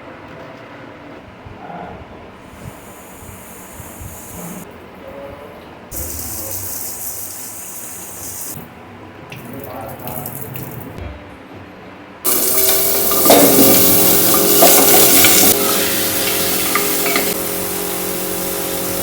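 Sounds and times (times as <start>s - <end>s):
tap water running into sink: 6.0s - 8.5s, 12.3s - 19.0s.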